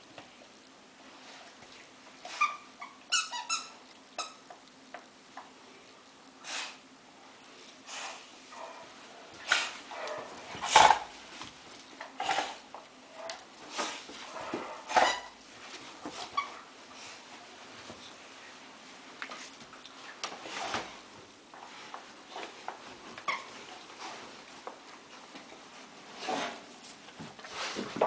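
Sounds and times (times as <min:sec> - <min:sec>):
squeaky dog toy: 0:02.4 - 0:04.4.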